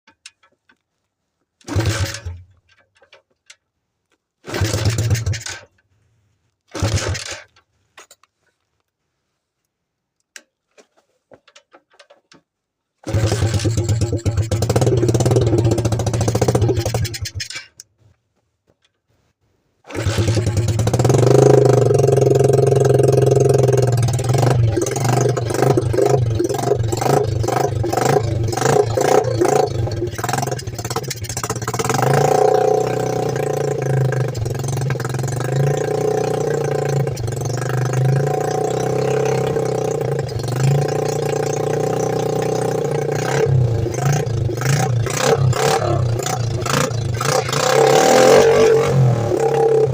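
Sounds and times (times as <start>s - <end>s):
dirt bike engines revving: 19.9s - 49.9s.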